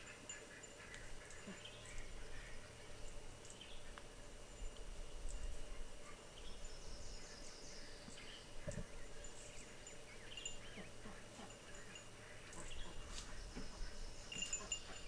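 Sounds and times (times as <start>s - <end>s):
small birds chirping: 5.1s - 15.0s.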